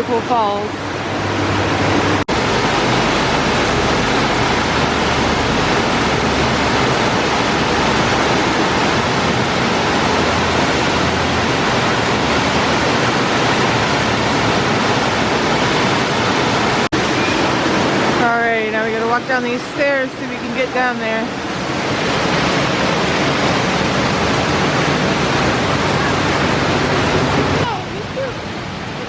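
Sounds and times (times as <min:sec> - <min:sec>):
waterfall roaring: 0:00.0 - 0:29.0.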